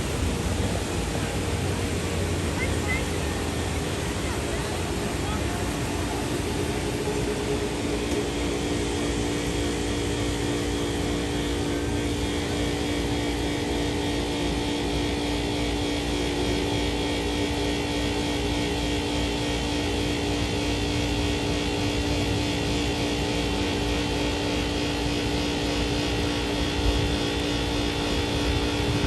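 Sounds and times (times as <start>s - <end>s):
waterfall rushing: 0.0s - 8.1s
faint steady hum: 0.0s - 29.0s.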